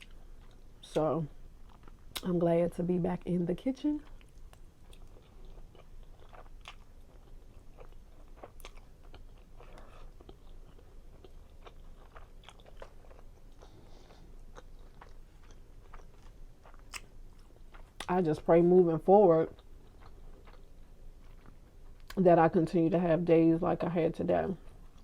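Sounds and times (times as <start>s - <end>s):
person chewing: 1.6s - 2.2s, 4.0s - 18.1s, 19.6s - 22.2s.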